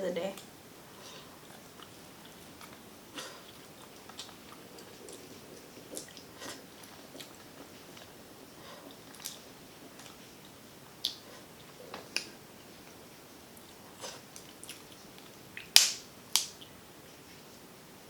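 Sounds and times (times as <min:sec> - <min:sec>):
mouth clicks and smacks: 0:01.1 - 0:08.2, 0:08.8 - 0:13.0, 0:13.6 - 0:16.8
chewing and biting seafood: 0:01.1 - 0:12.3.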